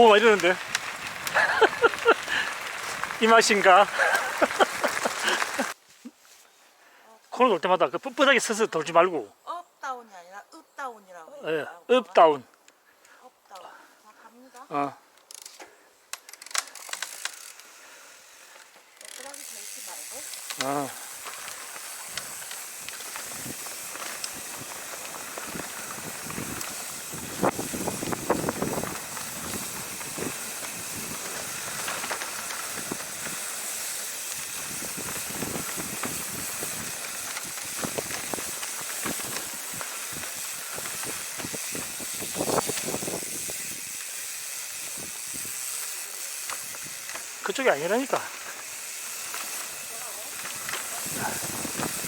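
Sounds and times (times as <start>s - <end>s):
bicycle rattling over bumps: 0.0s - 5.8s, 16.2s - 52.0s
wind hiss on microphone: 0.0s - 5.8s, 19.7s - 52.0s
bicycle tyres rolling on dirt: 0.0s - 6.7s, 7.4s - 9.3s, 13.8s - 52.0s.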